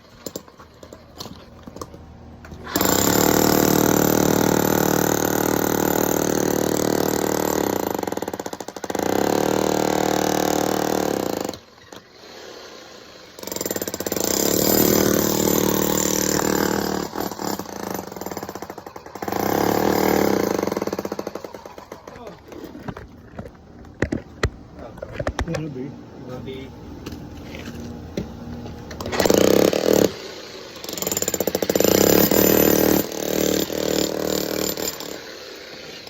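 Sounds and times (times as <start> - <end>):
jackhammer running: 2.6 - 22.4, 28.9 - 36.0.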